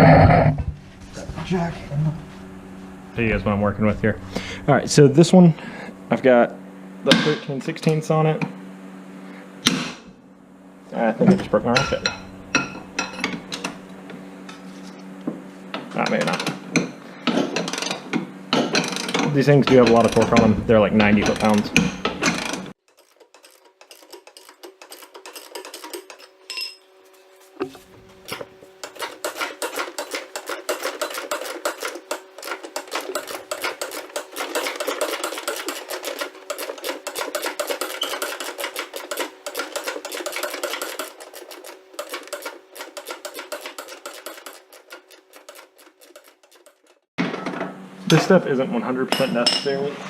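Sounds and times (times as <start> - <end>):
hand ratchet clicking: 18.6 - 26.3, 28.3 - 47.0.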